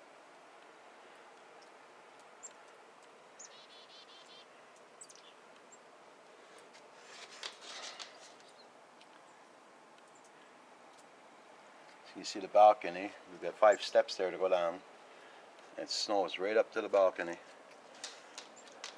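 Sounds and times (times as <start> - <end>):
outdoor hush: 0.0 - 18.9
bird trill: 3.4 - 5.4
high bird chirps: 3.4 - 5.4
rustling: 6.3 - 9.3.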